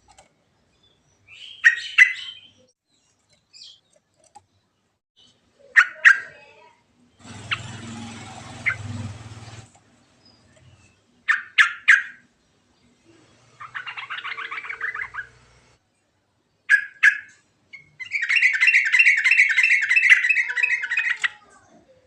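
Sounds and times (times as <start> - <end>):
bulbul singing: 0.7 - 4.0, 7.2 - 9.5, 13.5 - 15.8.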